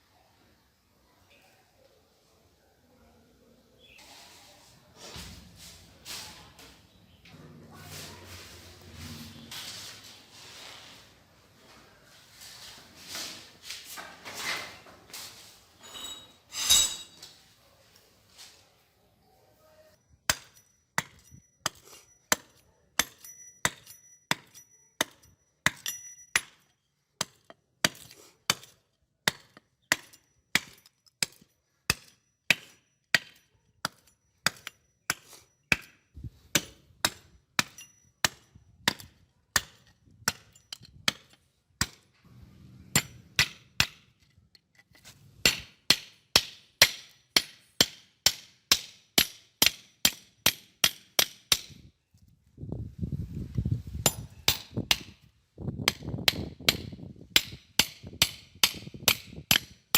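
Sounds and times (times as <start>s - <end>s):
thin metallic ring: 15.8s - 17.3s.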